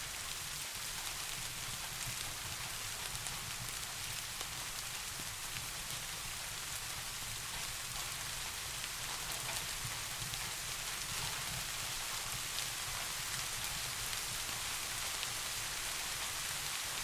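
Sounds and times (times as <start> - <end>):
steady rain hiss: 0.0 - 17.0
raindrop ticks: 7.4 - 16.8.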